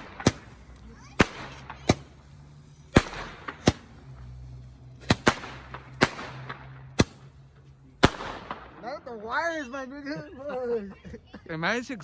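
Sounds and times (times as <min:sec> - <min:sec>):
fireworks bangs: 0:00.0 - 0:09.0.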